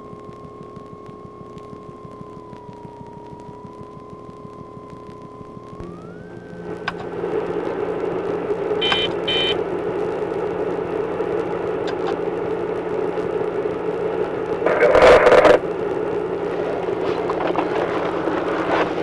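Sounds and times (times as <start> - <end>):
car engine hum and road noise: 3.3 - 19.0
short electronic beeps: 8.8 - 9.6.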